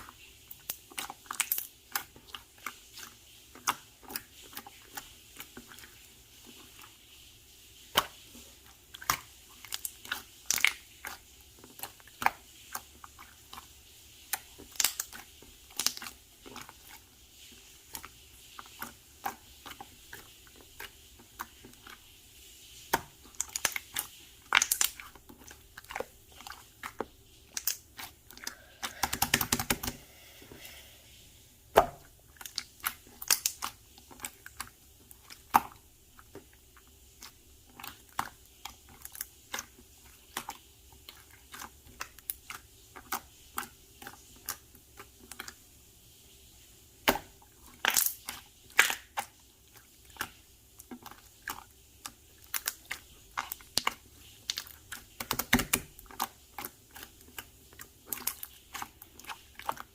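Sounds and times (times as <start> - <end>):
slime crackling: 0.0 - 7.1, 7.8 - 31.0, 31.6 - 45.6, 47.0 - 59.9
slime squished by hand: 8.9 - 17.0, 22.9 - 30.9, 31.7 - 45.6, 47.0 - 59.9.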